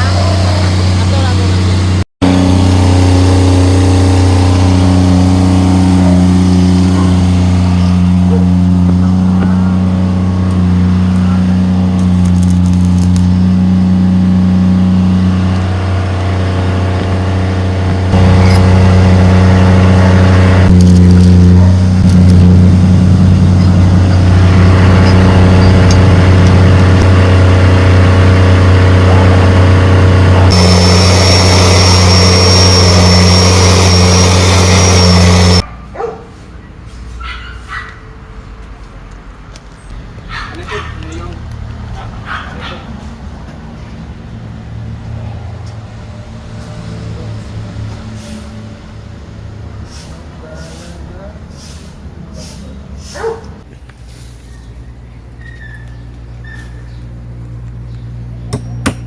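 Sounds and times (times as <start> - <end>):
motor humming steadily: 0.0 - 35.6.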